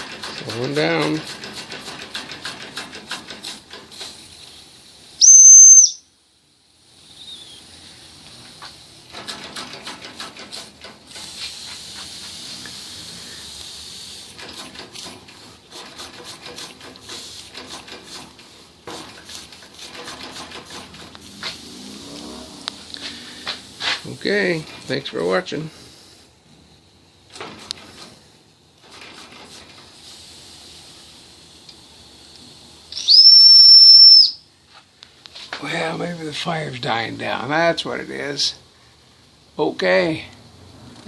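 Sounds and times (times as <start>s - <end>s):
toy steam engine ticking: 0.0s - 4.2s
steam hiss: 0.0s - 41.0s
shrill steam whistle: 5.2s - 6.1s, 7.1s - 7.7s, 32.9s - 34.4s.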